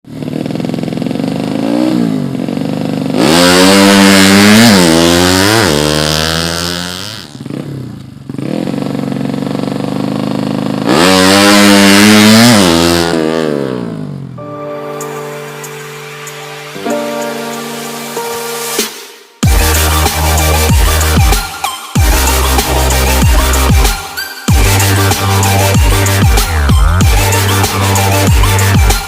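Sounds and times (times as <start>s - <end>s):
motorcycle engine revving: 0.1s - 14.4s, 24.5s - 29.0s.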